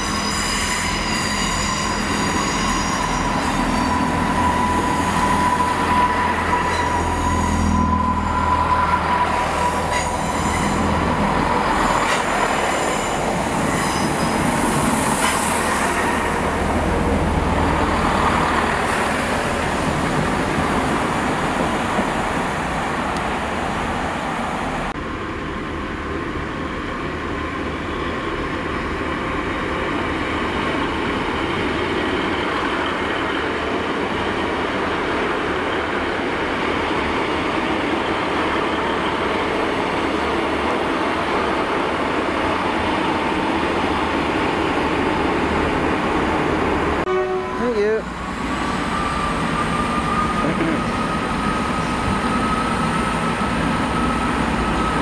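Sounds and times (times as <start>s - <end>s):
train wheels squealing: 0.0s - 16.5s, 48.2s - 55.0s
diesel train approaching: 0.0s - 55.0s
diesel engines running: 50.4s - 51.1s.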